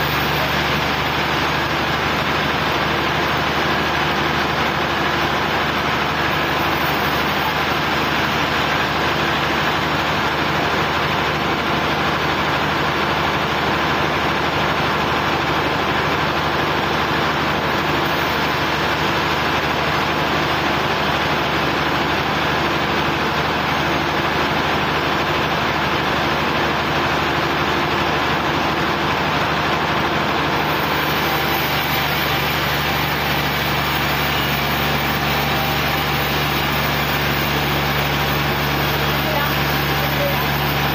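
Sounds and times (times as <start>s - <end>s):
sawmill engine running: 0.0s - 40.9s.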